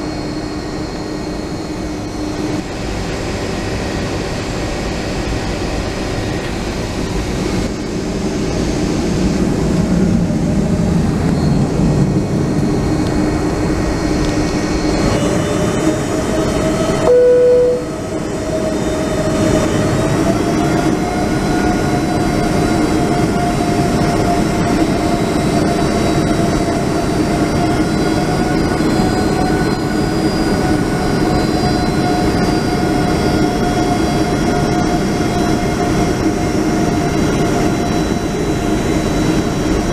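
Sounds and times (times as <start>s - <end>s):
jet engines whining in cabin: 0.0s - 39.9s
short loud tone: 17.0s - 18.2s.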